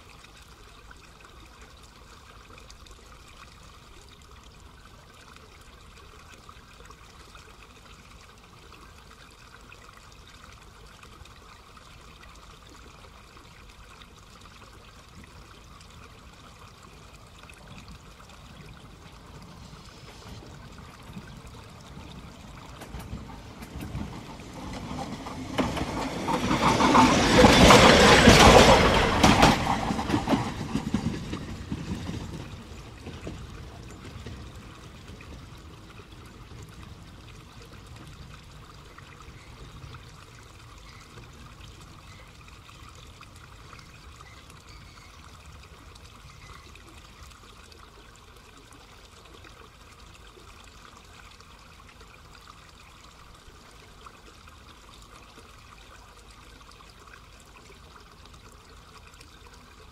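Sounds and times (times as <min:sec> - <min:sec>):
faint steady hiss: 0:00.0 - 0:26.3
electric train passing: 0:21.7 - 0:35.8.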